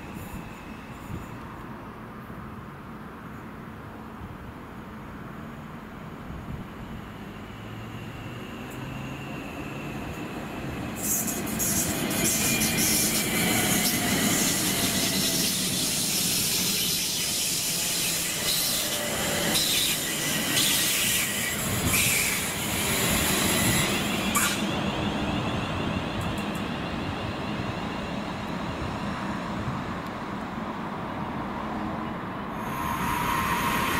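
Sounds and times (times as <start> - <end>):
train wheels rumbling on rail: 6.5 - 33.9
faint wheel squeal: 23.4 - 26.1
high hiss: 32.6 - 33.9.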